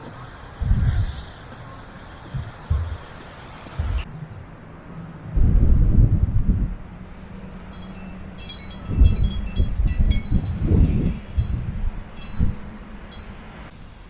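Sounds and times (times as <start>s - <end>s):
low wind rumbles: 0.0s - 14.0s
wind chimes tinkling: 6.8s - 13.8s.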